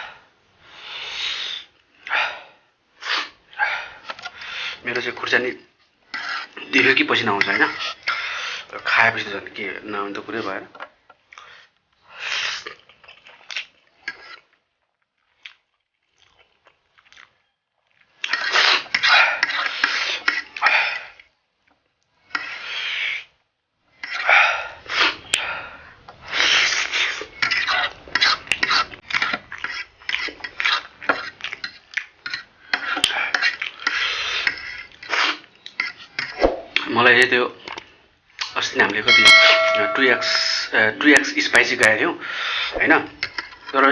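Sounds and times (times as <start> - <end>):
slurping and chewing noodles: 6.0 - 9.0, 11.3 - 21.4, 22.2 - 36.4.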